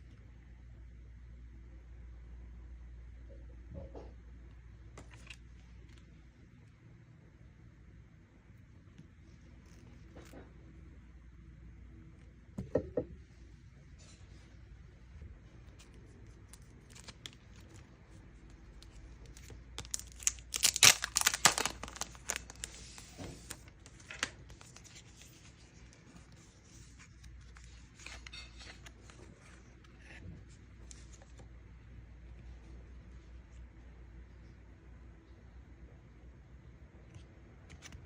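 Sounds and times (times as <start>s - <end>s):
packaging tearing and crinkling: 16.5s - 17.9s, 18.8s - 25.4s.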